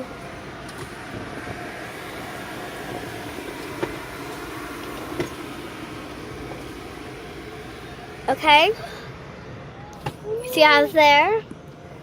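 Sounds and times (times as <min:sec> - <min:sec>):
car cabin rumble: 0:00.0 - 0:08.8.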